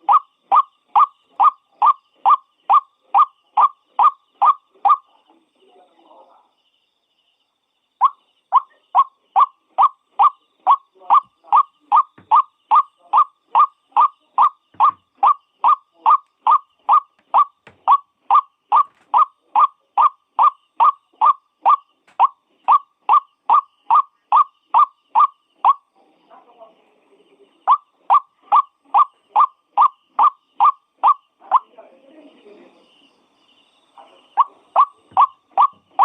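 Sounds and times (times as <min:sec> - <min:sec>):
waterhen calling: 0:08.0 - 0:25.8, 0:27.7 - 0:31.7, 0:34.4 - 0:36.0.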